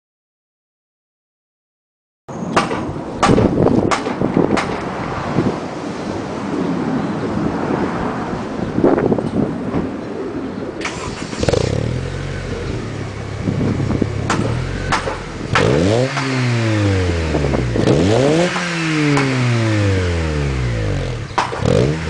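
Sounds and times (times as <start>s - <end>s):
car engine idling and revving: 11.0s - 22.0s.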